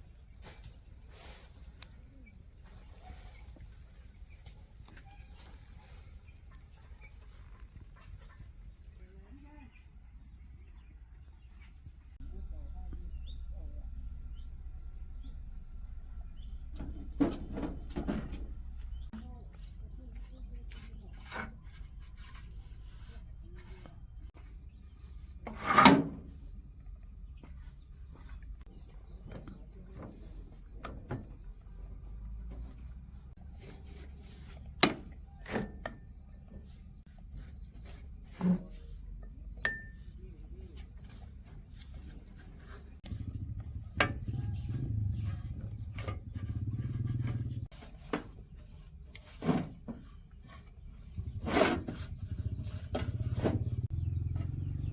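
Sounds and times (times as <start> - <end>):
insects chirring: 0.0 - 54.9
sharp knocks and clinks: 39.2 - 40.2.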